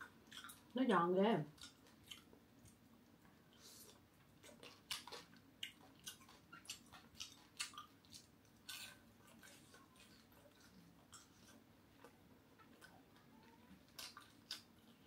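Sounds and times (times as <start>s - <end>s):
crunching crispy fried fish: 3.6s - 12.9s, 13.8s - 15.0s.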